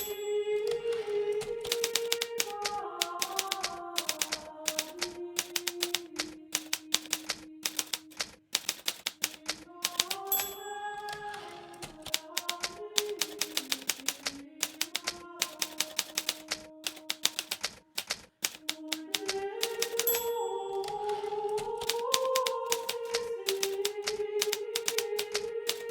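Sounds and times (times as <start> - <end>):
typewriter bell ring: 0.0 - 6.0, 6.6 - 8.0, 8.6 - 25.9
typewriter keys striking: 0.0 - 25.9.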